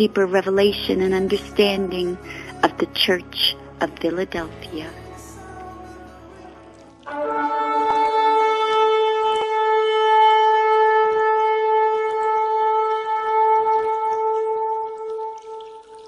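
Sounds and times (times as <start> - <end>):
ram's horn long held note: 7.1 - 15.7.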